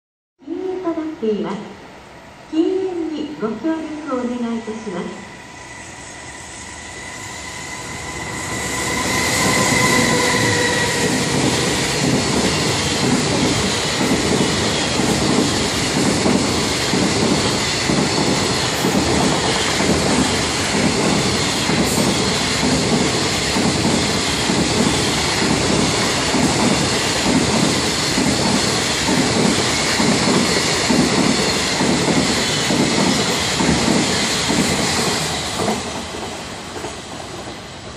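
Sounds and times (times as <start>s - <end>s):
held train horn tone: 4.2s - 11.9s
freight train wheels clattering: 8.6s - 37.6s.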